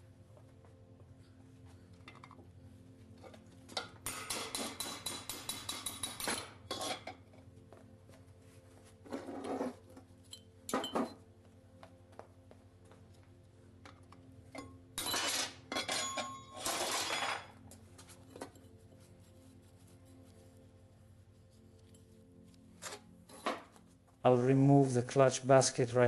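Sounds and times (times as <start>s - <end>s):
metal tools clinking: 14.6s - 17.6s.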